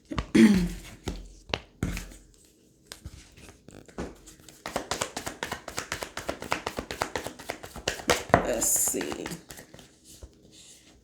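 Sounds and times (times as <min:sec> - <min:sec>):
deck of cards shuffling: 0:03.0 - 0:10.8
cards tapping and flicking: 0:03.8 - 0:09.9.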